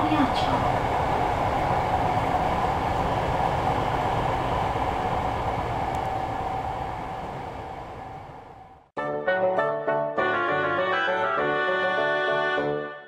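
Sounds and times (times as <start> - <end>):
train rumble inside carriage: 0.0 - 8.9
train whine: 0.0 - 8.9.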